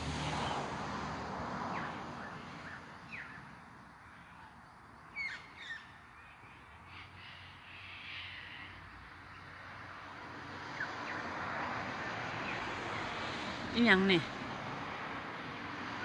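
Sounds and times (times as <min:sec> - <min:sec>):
harsh bird calls: 0:05.1 - 0:09.5.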